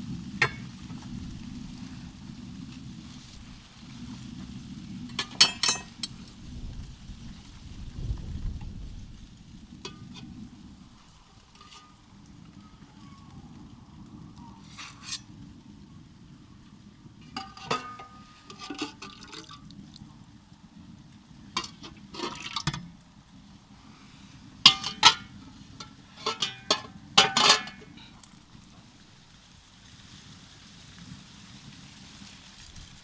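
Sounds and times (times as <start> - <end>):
low background rumble: 0.0 - 29.5
tableware clinking: 5.1 - 6.1, 14.7 - 15.2, 17.4 - 19.3, 21.6 - 22.8, 24.7 - 25.3, 26.2 - 27.9.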